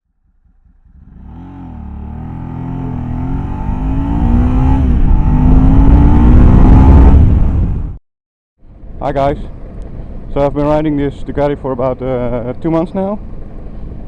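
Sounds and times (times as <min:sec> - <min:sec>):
motorcycle engine accelerating: 0:00.0 - 0:08.0.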